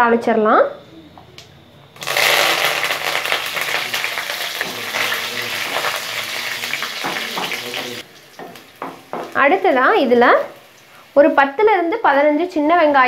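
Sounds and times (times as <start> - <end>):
spices sizzling in hot oil: 2.0 - 12.2.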